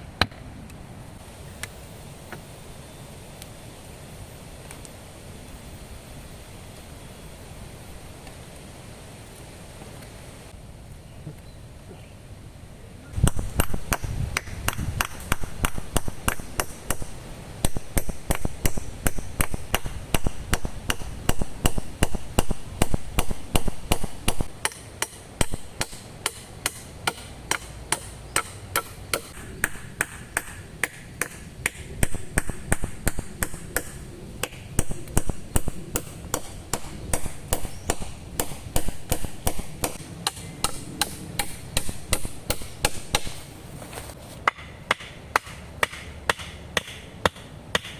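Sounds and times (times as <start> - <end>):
wood being chopped: 13.2 - 43.4, 44.4 - 47.9.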